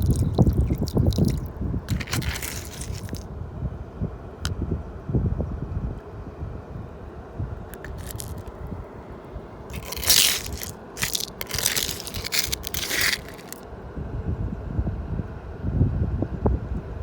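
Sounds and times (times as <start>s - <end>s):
brittle crunching and crackling: 0.0s - 3.2s, 7.8s - 8.5s, 9.7s - 13.6s
wind rumble on microphone: 0.0s - 8.8s, 13.9s - 17.0s.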